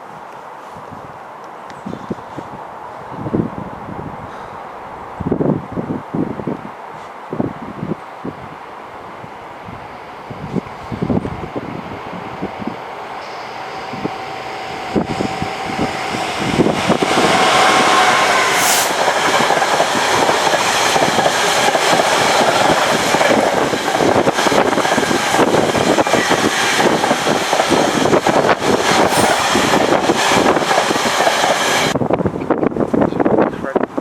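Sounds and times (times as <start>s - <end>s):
train passing: 7.6s - 32.0s.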